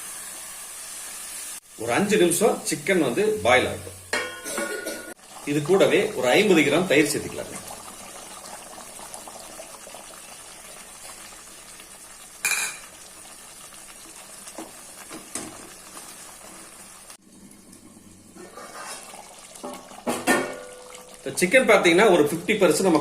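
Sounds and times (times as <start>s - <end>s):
low sizzle: 0.0s - 23.0s
spoon stirring and scraping pot: 18.4s - 20.5s.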